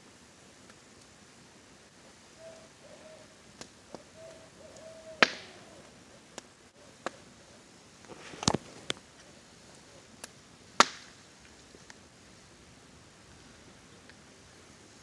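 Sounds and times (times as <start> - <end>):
faint rain hiss: 0.0 - 15.0
campfire popping and crackling: 0.4 - 2.4, 3.3 - 15.0
owl hooting: 2.3 - 7.7.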